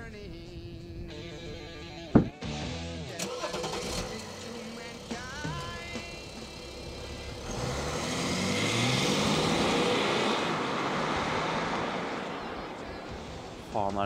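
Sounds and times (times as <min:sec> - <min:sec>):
car engine revving and accelerating: 0:03.3 - 0:13.8.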